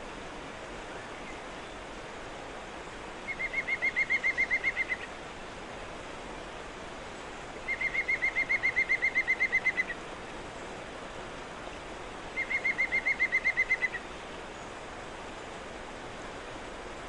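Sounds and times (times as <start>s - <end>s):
river water rushing: 0.0s - 17.0s
songbird trills: 3.2s - 5.1s, 7.2s - 10.0s, 11.6s - 14.8s.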